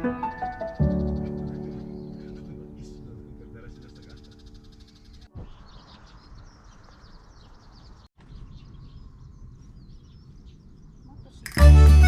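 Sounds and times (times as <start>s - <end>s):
small birds chirping: 0.0s - 11.6s
faint outdoor background: 0.0s - 12.0s
loud music: 11.5s - 12.0s.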